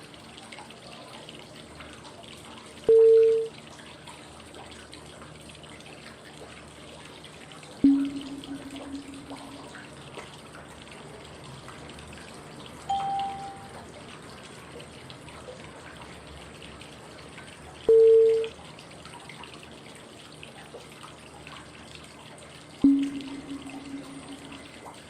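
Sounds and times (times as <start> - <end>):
short pitched cue tone: 7.8 - 9.7, 12.9 - 13.7, 22.8 - 24.6
flowing water white noise: 7.8 - 9.8, 12.5 - 14.0, 22.8 - 25.0.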